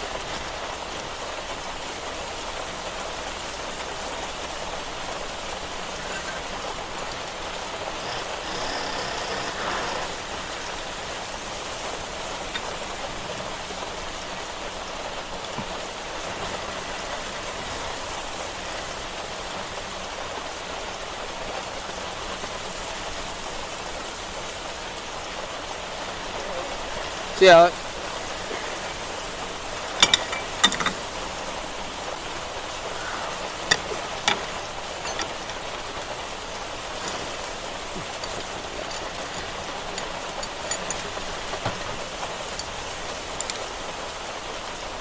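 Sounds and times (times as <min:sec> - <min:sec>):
rain on hard surfaces: 0:00.0 - 0:45.0.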